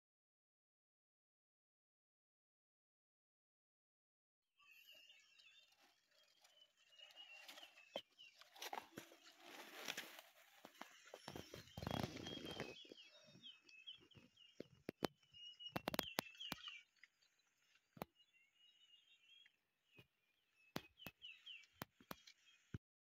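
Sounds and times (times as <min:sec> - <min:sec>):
faint bird chirps: 0:04.6 - 0:22.8.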